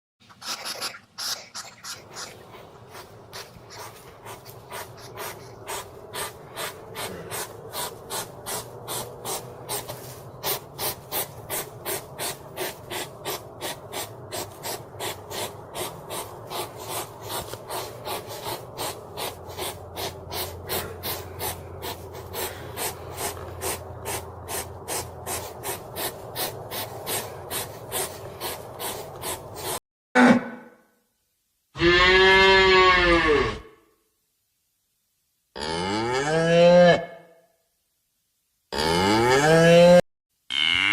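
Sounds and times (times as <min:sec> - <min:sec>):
hedgehog snuffling: 0:00.2 - 0:29.8.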